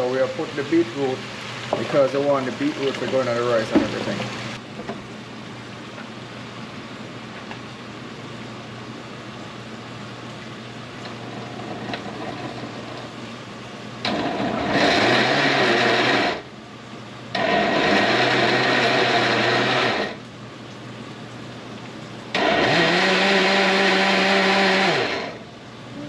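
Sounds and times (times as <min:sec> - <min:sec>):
blender running: 0:00.0 - 0:04.6, 0:14.0 - 0:16.5, 0:17.3 - 0:20.2, 0:22.3 - 0:25.5.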